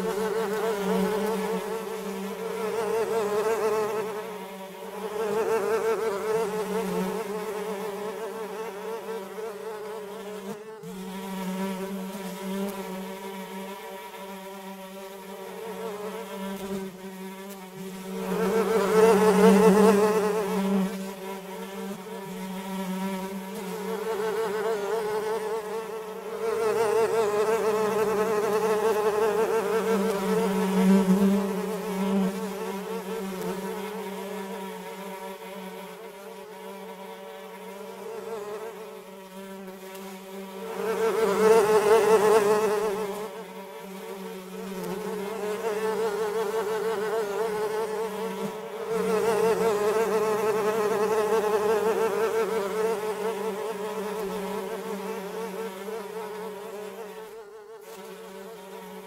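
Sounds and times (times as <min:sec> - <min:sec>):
flies buzzing: 0:00.0 - 0:59.0.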